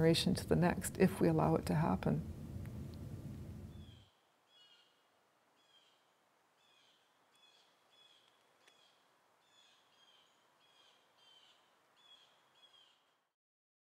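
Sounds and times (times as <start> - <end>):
low hiss: 0.0 - 13.3
small clicks: 8.2 - 8.8.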